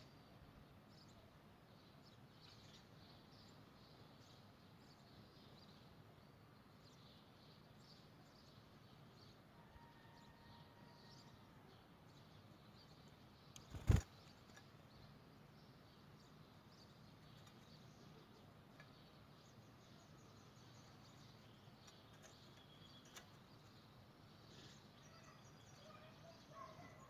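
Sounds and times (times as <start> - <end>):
canary chirps: 12.7 - 14.4, 17.1 - 27.0.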